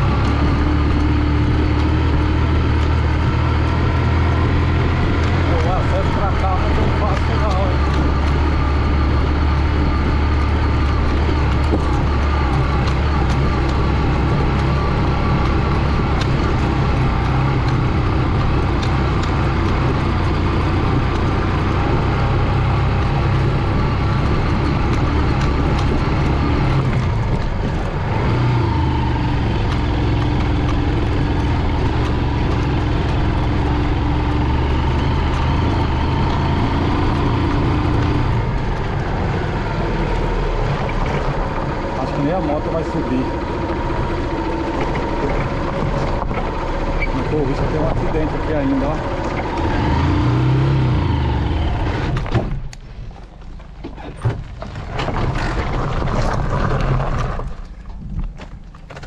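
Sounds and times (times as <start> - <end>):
small motorcycle engine running: 0.0 - 52.3.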